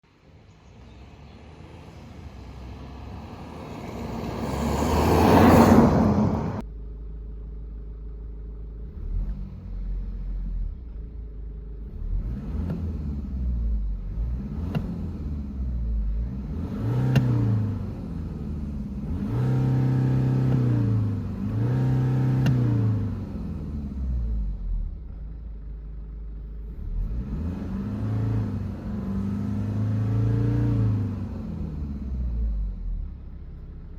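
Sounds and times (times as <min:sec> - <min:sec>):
diesel engine idling and revving: 0:00.1 - 0:33.9
rising rush of noise: 0:02.4 - 0:06.6.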